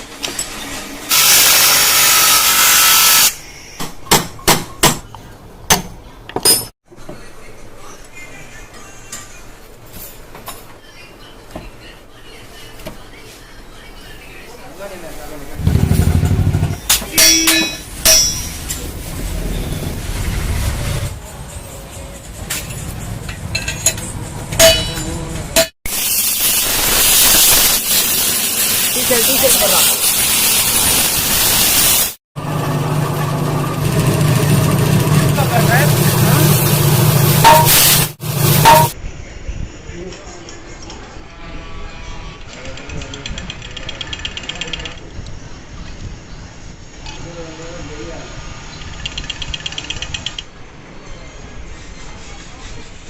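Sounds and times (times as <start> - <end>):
loud spraying hiss: 25.9 - 32.2.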